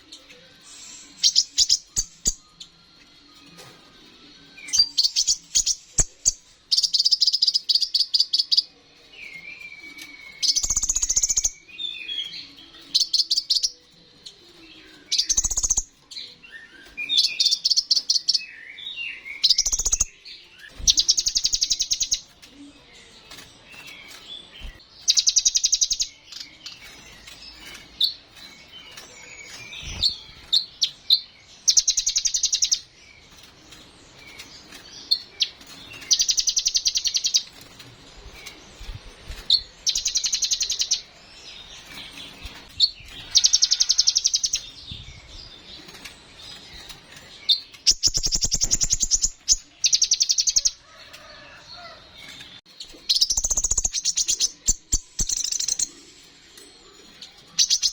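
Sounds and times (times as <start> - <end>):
bird sharp chips: 45.7 - 56.0.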